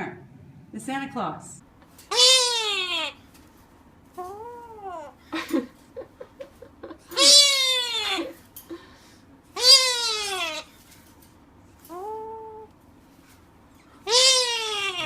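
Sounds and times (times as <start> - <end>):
cat meowing: 9.6 - 10.7, 14.1 - 15.0.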